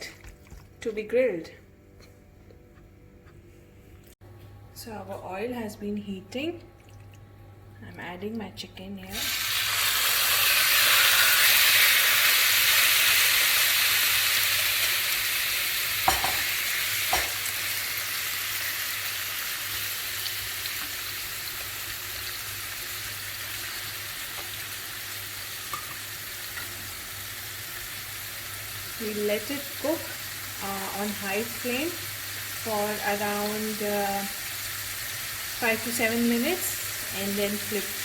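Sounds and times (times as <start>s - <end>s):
chicken sizzling in oil: 9.1s - 38.0s.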